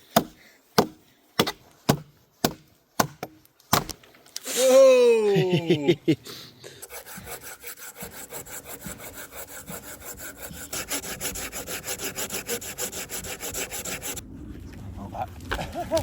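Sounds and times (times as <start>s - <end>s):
hand saw cutting wood: 6.8s - 14.2s.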